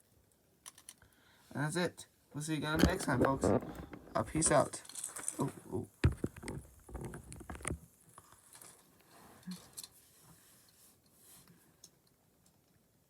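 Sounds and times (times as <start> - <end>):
handling clicks and rustles: 2.6 - 8.9.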